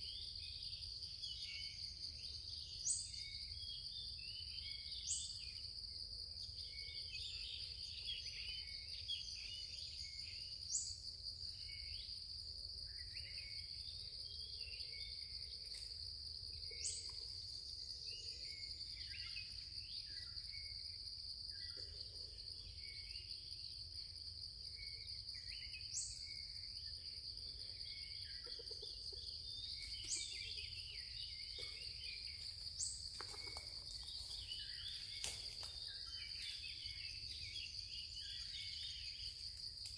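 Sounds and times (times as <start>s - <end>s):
small bird chirps: 27.8s - 39.9s.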